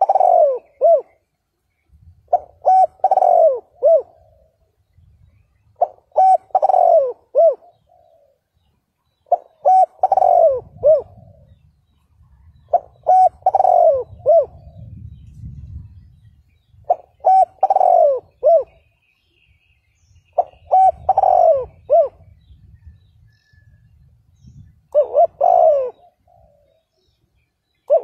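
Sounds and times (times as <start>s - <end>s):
dove cooing: 0.0s - 1.3s, 2.3s - 16.0s, 16.8s - 19.0s, 20.2s - 23.8s, 24.5s - 28.0s
faint low rumble: 10.4s - 17.6s.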